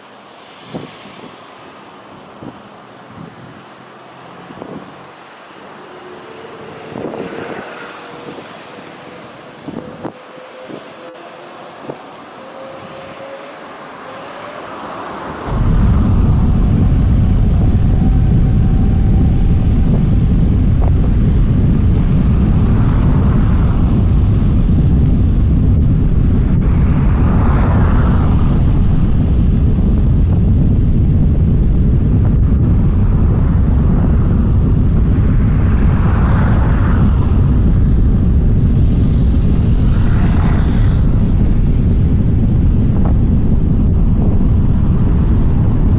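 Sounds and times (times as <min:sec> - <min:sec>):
loud rumble of takeoff thrust: 0:15.2 - 0:45.9.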